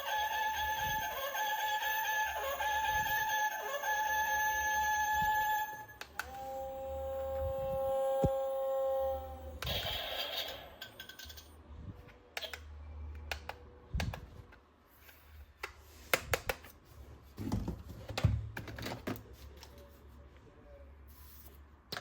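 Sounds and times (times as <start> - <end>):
plastic parts clicking and knocking: 17.4 - 19.2.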